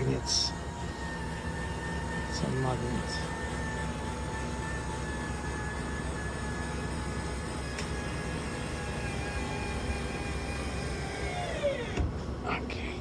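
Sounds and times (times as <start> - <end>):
engine idling drone: 0.0 - 13.0
steady high whine: 0.0 - 13.0.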